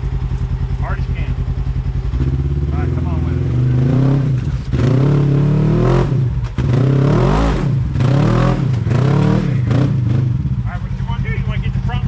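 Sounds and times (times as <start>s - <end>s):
engine revving under load: 0.0s - 12.0s.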